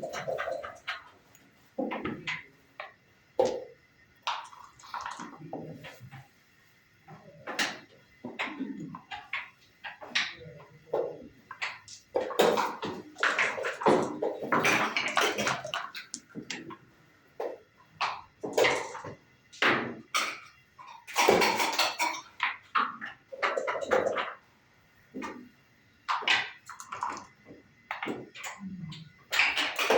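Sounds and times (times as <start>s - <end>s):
wooden checkers clacking: 0.0s - 1.2s, 7.4s - 16.8s.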